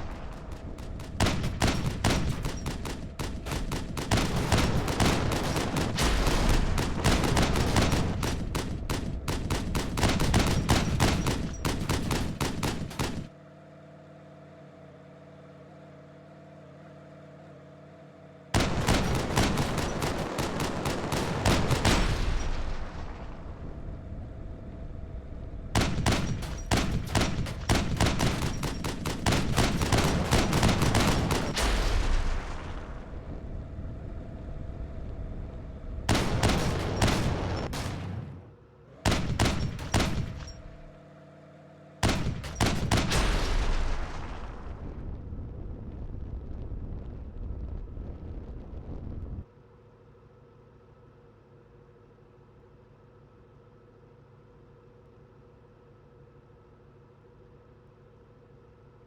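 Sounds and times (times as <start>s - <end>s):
rapid loud bangs and crackles: 0.0s - 13.4s, 18.6s - 41.0s, 42.0s - 49.5s.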